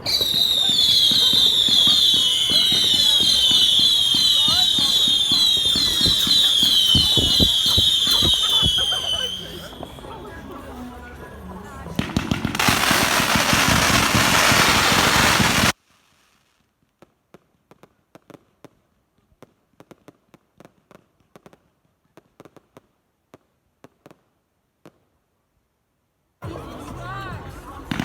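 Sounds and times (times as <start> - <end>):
fireworks crackling: 0.0 - 18.8, 27.5 - 28.0.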